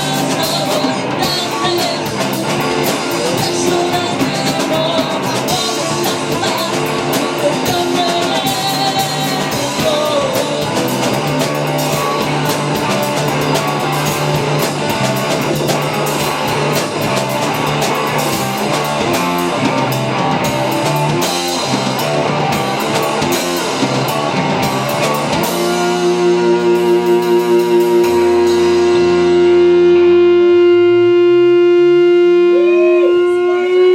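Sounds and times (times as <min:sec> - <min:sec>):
person singing: 0:00.0 - 0:11.2, 0:25.4 - 0:31.2, 0:32.0 - 0:33.9
bass guitar: 0:00.0 - 0:33.9
drum kit: 0:00.0 - 0:33.9
electric guitars: 0:00.0 - 0:33.9.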